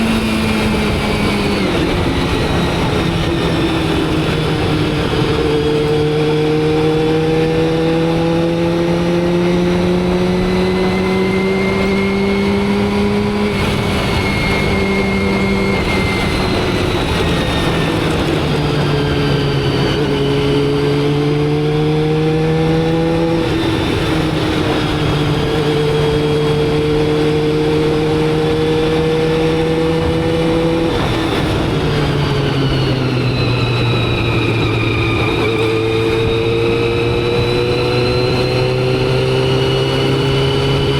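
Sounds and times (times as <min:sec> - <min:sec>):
motorcycle engine revving: 0:00.0 - 0:40.9
road and wind noise: 0:00.0 - 0:40.9.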